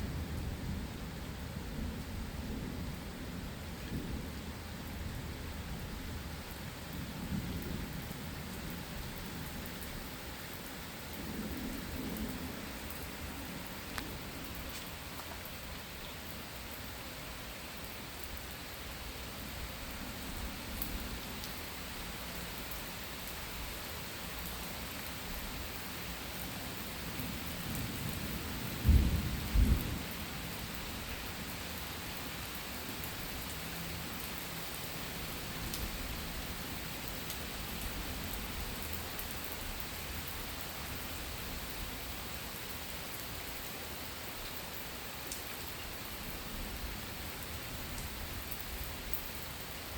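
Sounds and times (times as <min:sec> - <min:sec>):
heavy rain falling: 0:00.0 - 0:49.9
thunder rumbling and cracking: 0:27.8 - 0:30.2.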